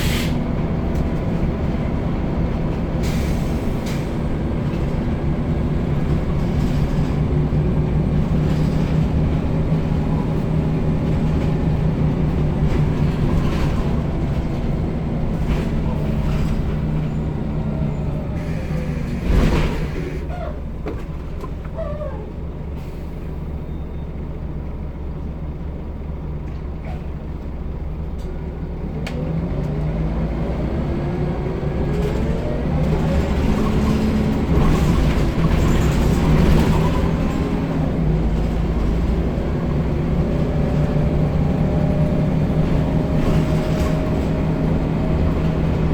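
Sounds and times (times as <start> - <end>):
loud hiss of air: 0.0 - 0.4
bus engine running: 0.0 - 45.9.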